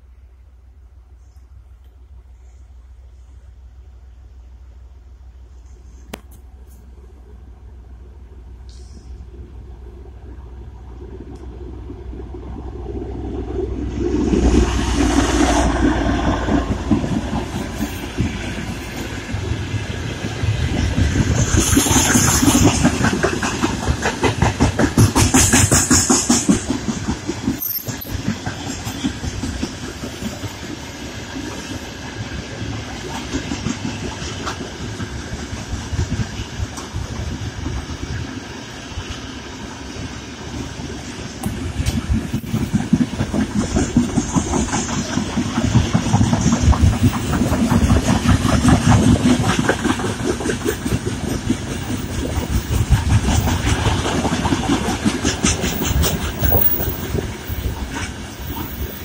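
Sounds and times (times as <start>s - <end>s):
train wheels clacking over rail joints: 14.0s - 38.4s, 40.5s - 59.0s.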